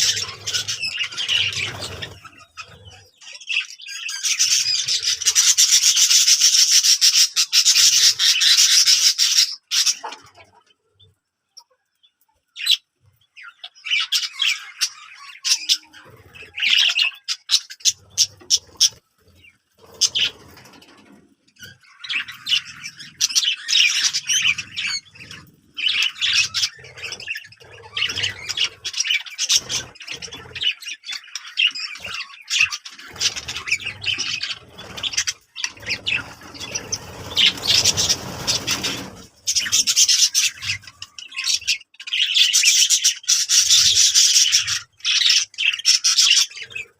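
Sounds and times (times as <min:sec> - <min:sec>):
birds chirping and squawking: 0:00.0 - 0:46.9
low rustling or scratching: 0:33.2 - 0:40.3.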